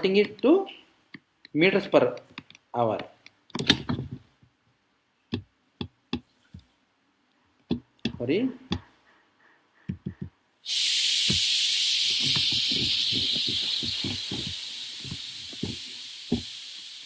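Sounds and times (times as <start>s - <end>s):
loud hiss: 10.6s - 17.0s.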